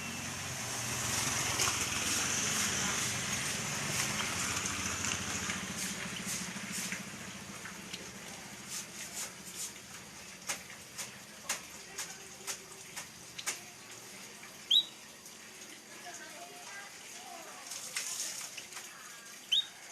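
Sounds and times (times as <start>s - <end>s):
bird giving sharp chirps: 14.7s - 15.0s, 19.5s - 19.8s.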